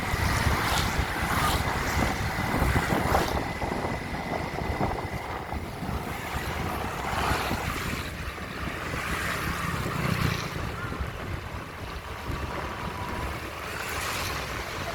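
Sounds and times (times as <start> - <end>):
steady low rumble: 0.0 - 8.1
wind buffeting microphone: 0.0 - 14.9.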